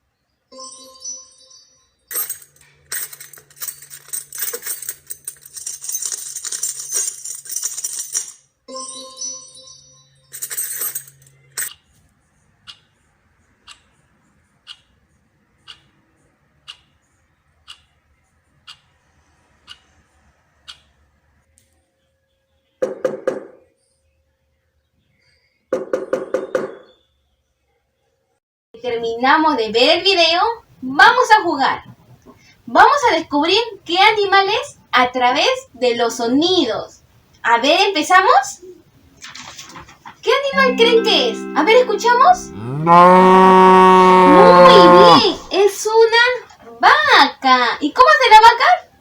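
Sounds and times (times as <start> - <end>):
metal and crockery clinking: 2.1 - 8.5, 10.3 - 11.7.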